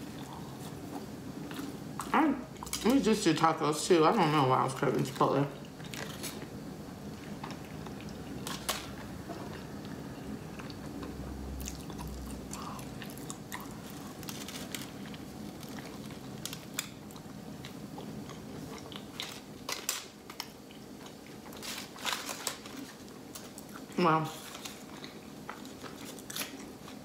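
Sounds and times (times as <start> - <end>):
low steady hum: 0.0 - 27.0
person chewing food: 5.6 - 27.0.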